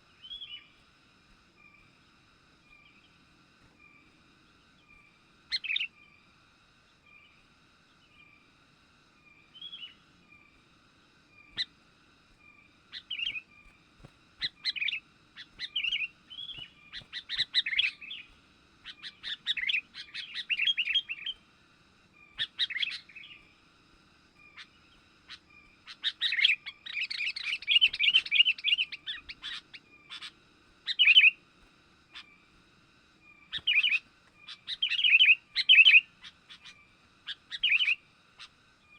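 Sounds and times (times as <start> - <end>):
faint repeating bird call: 0.0 - 38.9
bulbul chirping: 14.4 - 21.4, 24.5 - 31.4, 33.4 - 38.6.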